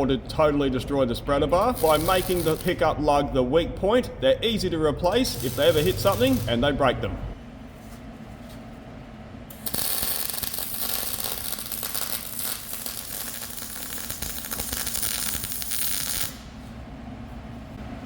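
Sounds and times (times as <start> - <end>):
low workshop hum: 0.0 - 18.0
welder crackling: 1.6 - 2.8, 5.0 - 6.8, 9.5 - 16.5.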